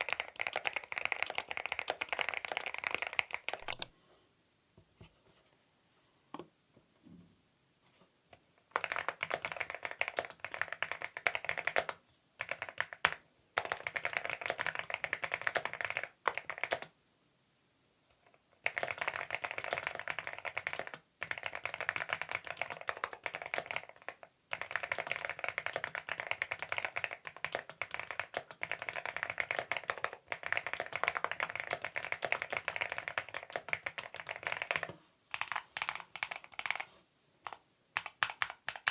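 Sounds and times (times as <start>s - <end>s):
light key clicks: 3.6s - 3.9s
typing on mechanical keys: 3.6s - 3.9s.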